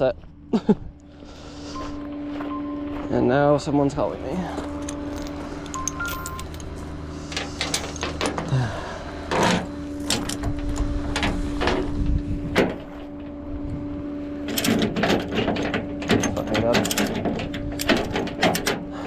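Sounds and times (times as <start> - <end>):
vehicle engine humming: 0.0 - 19.0
clicks and clunks: 4.8 - 8.6, 9.3 - 13.4, 14.5 - 19.0.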